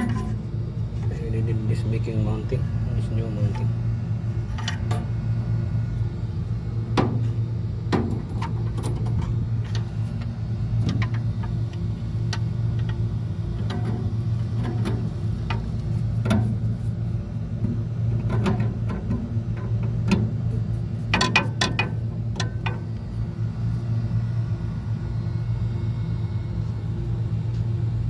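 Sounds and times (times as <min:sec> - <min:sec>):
low machinery hum: 0:00.0 - 0:28.0
tools clicking and knocking on metal: 0:21.1 - 0:22.8.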